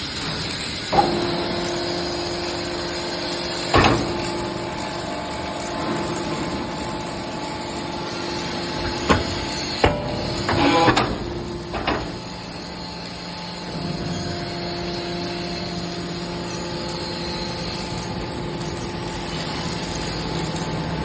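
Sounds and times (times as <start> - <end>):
hydraulic machine hum: 0.2 - 21.0
metal clanks: 3.6 - 7.3, 8.6 - 12.9
metal scrape: 8.1 - 18.2.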